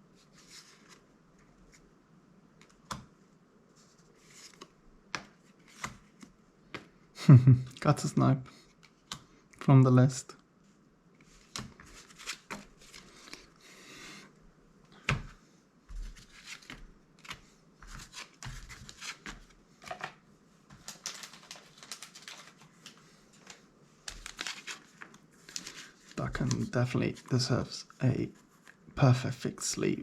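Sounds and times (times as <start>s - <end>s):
cards sliding rustle: 0.3s - 1.8s, 3.8s - 6.9s, 11.2s - 13.6s, 15.9s - 20.0s, 20.8s - 26.8s.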